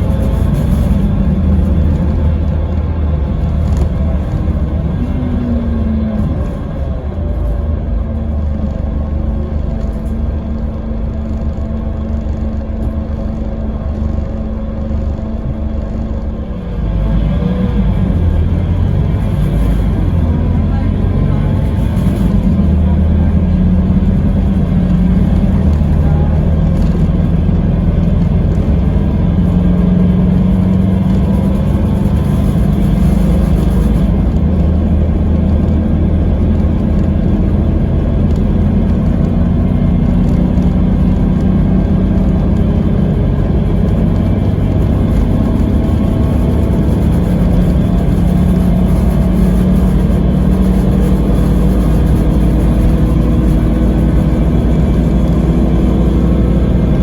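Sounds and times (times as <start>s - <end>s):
diesel engine running: 0.0s - 57.0s
road noise: 0.0s - 57.0s.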